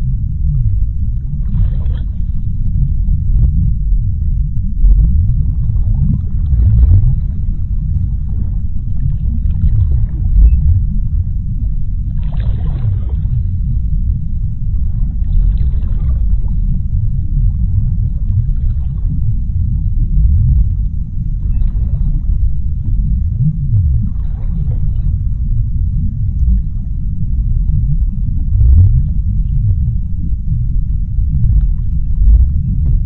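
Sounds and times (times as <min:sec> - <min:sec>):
deep underwater rumble: 0:00.0 - 0:33.0
hissing underwater washes: 0:12.1 - 0:33.0.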